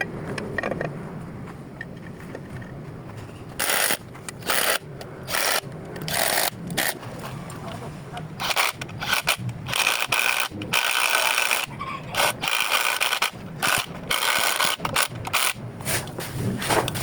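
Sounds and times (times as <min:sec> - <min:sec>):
ratchet clicking: 0:03.6 - 0:07.0, 0:08.4 - 0:15.6.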